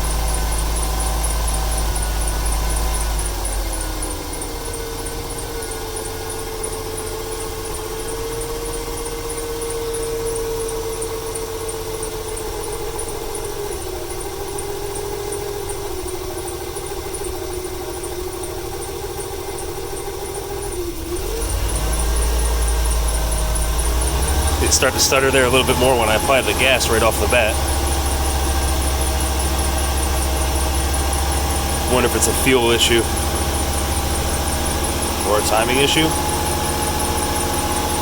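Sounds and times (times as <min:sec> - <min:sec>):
engine misfiring: 0:00.0 - 0:38.0
steady whine: 0:21.3 - 0:38.0.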